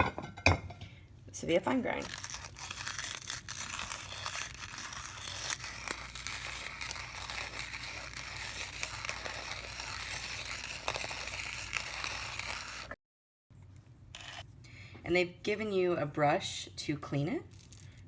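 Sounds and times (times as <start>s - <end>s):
coffee grinder grinding beans: 1.9s - 13.0s.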